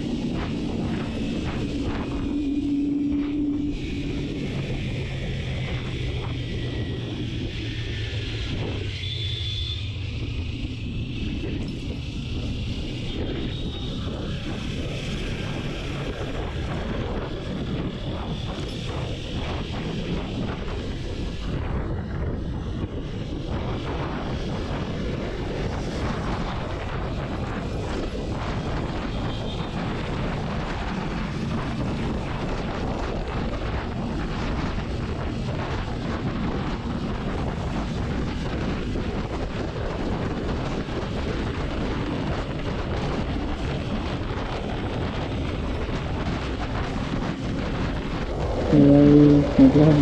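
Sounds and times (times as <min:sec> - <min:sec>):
wind rushing on microphone: 0:00.0 - 0:50.0
motorcycle engine running: 0:42.7 - 0:50.0.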